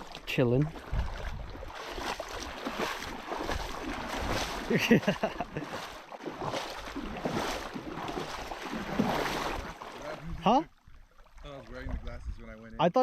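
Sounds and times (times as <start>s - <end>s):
river water splashing: 0.0s - 12.7s
wind noise on microphone: 0.8s - 2.1s, 11.8s - 12.6s.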